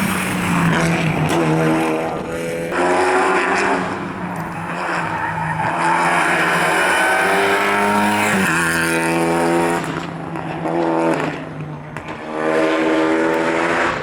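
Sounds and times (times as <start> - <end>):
rally car engine accelerating: 0.0 - 14.0.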